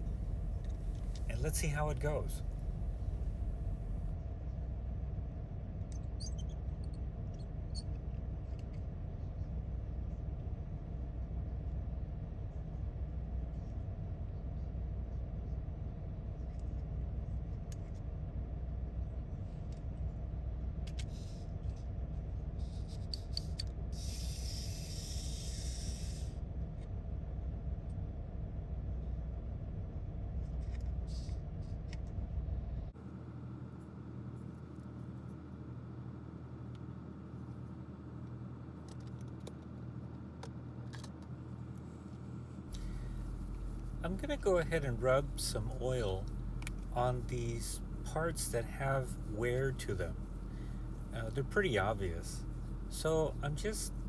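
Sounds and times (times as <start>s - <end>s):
steady low hum: 0.0s - 4.2s, 42.7s - 54.0s.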